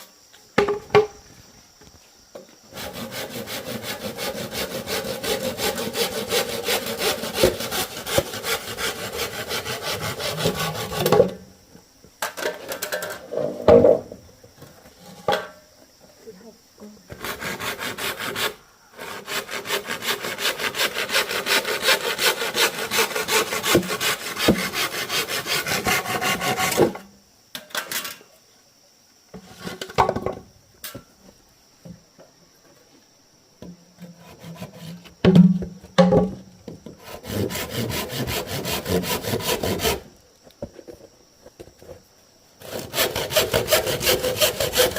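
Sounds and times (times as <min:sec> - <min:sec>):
hand saw cutting bamboo: 0:02.7 - 0:11.3, 0:17.1 - 0:27.0, 0:34.2 - 0:35.1, 0:37.0 - 0:40.1, 0:42.6 - 0:44.9.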